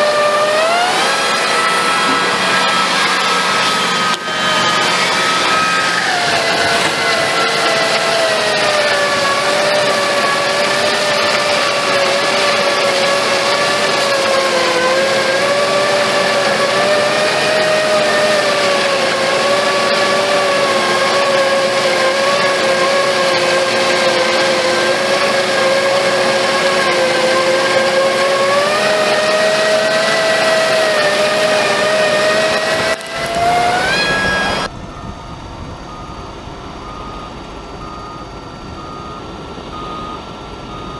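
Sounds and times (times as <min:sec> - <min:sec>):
tractor engine whining under load: 0:00.0 - 0:40.9.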